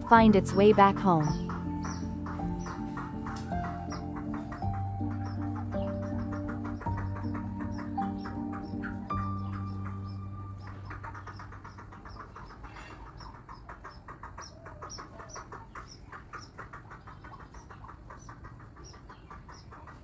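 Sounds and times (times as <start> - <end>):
background music: 0.0 - 12.6
chick peeping: 0.0 - 20.0.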